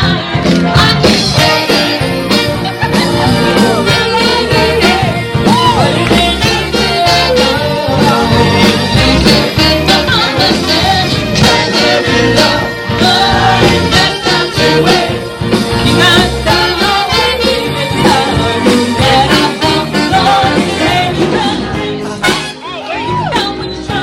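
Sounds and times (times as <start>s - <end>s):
person singing: 0.0s - 15.1s
drums: 0.0s - 24.0s
live rock and roll band: 0.0s - 24.0s.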